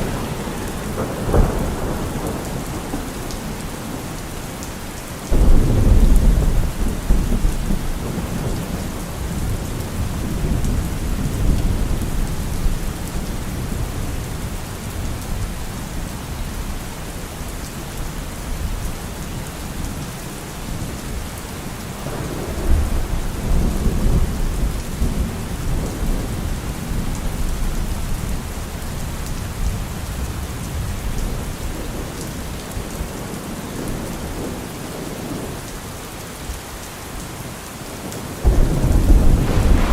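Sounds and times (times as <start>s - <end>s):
thunder rumbling: 0.0s - 15.4s, 22.0s - 28.4s, 38.4s - 39.9s
heavy rain falling: 0.0s - 39.9s.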